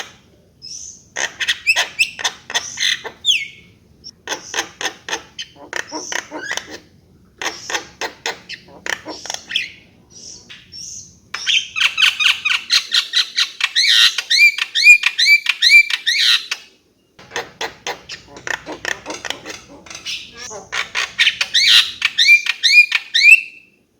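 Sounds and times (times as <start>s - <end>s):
myna clicking and chattering: 17.2s - 22.2s.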